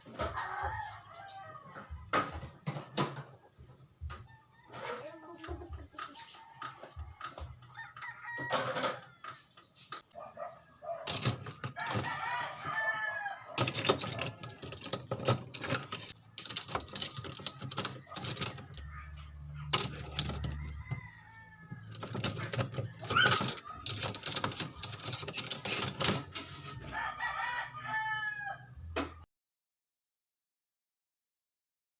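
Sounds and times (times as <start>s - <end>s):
rooster crowing: 0.1s - 2.3s, 6.1s - 9.4s, 11.7s - 24.1s, 25.5s - 28.8s
dishes clinking and clattering: 11.1s - 12.4s, 13.6s - 18.9s, 19.6s - 21.0s, 21.7s - 26.6s.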